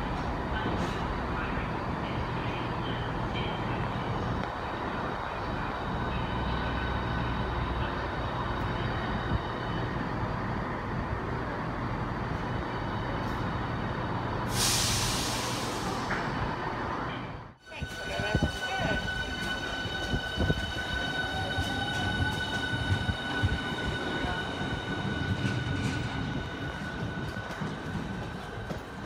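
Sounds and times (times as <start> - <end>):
standing train humming: 0.0 - 29.0
air hiss from train: 14.5 - 16.2.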